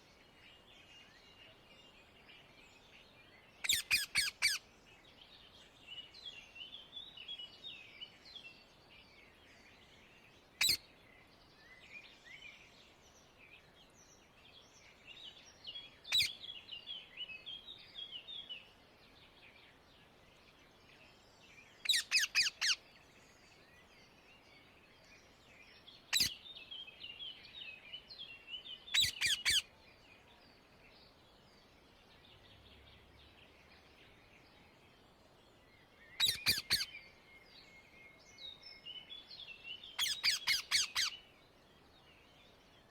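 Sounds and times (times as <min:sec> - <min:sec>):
parakeets screeching: 0:21.9 - 0:22.8, 0:29.0 - 0:29.6, 0:36.2 - 0:36.9, 0:40.0 - 0:41.1
parakeets chattering softly: 0:28.9 - 0:29.7, 0:36.2 - 0:36.9, 0:40.0 - 0:41.1.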